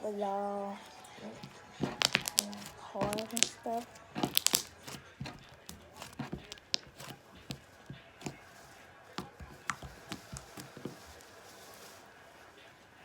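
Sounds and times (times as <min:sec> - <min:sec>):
slime clicks and pops: 0:04.2 - 0:04.7.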